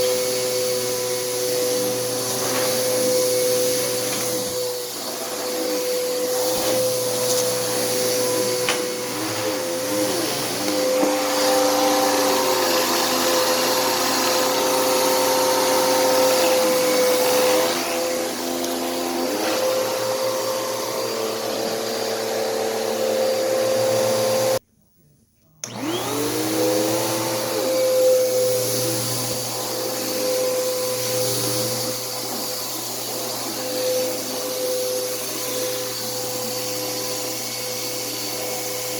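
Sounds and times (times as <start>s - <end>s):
vacuum cleaner running on carpet: 0.0s - 24.6s, 25.6s - 38.9s.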